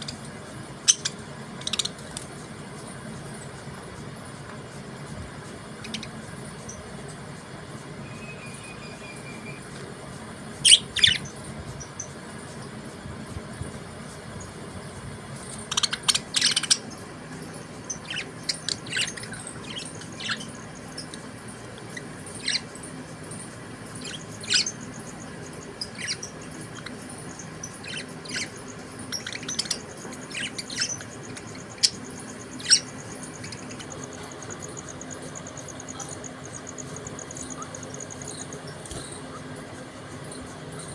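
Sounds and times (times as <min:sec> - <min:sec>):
budgerigars chirping: 0:00.0 - 0:02.2, 0:05.8 - 0:06.8, 0:10.5 - 0:12.2, 0:15.4 - 0:39.4
steady low hum: 0:00.0 - 0:40.9.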